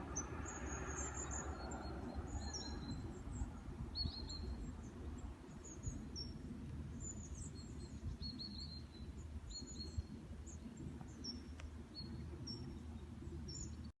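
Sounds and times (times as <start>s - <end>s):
songbirds chirping: 0.0s - 13.9s
steady low rumble: 0.0s - 13.9s.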